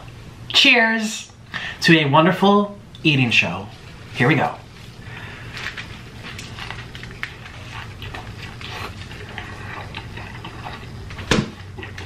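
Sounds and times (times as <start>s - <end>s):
person chewing a burger: 4.7s - 12.0s.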